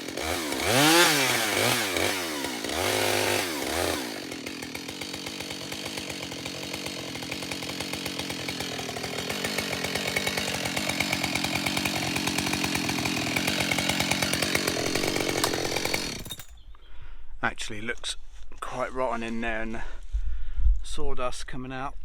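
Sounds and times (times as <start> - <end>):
chainsaw cutting into trunk: 0.0 - 16.6.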